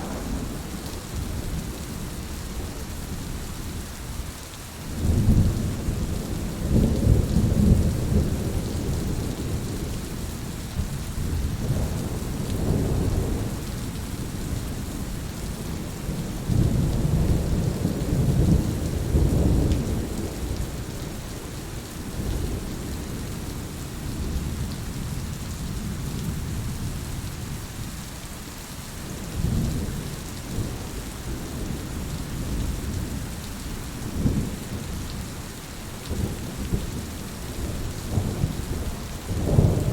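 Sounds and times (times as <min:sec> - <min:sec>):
rolling thunder: 0:00.0 - 0:02.6, 0:36.1 - 0:39.9
rain hissing: 0:00.0 - 0:03.5, 0:31.4 - 0:39.9.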